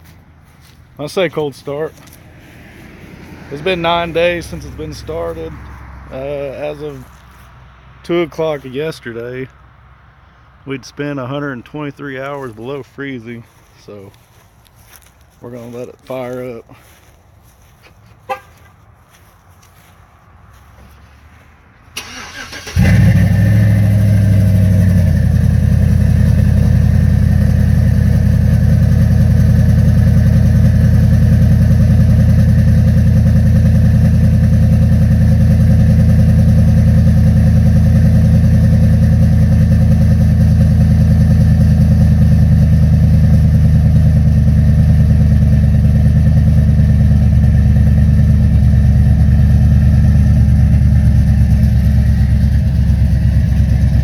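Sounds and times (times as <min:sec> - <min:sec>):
choppy engine idle: 0:03.6 - 0:07.4, 0:22.0 - 0:54.0
starter motor cranking: 0:22.0 - 0:23.2.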